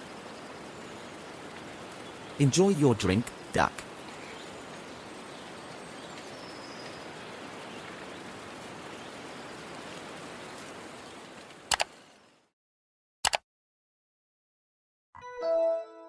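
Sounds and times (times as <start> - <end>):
steady outdoor hiss: 0.0 - 12.5.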